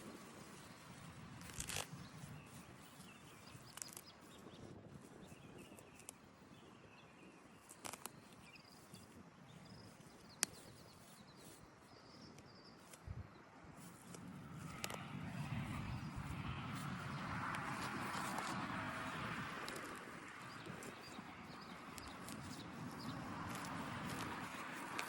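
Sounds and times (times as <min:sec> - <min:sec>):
scattered clicks: 0:03.5 - 0:04.5, 0:07.6 - 0:08.9, 0:13.9 - 0:16.2, 0:16.8 - 0:25.0.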